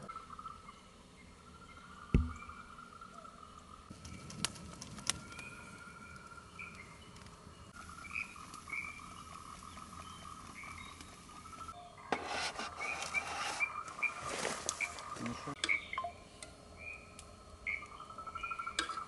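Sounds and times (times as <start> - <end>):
frog chorus: 7.8 - 10.0
rough rustling: 12.1 - 15.6
short chirping calls: 12.7 - 16.2.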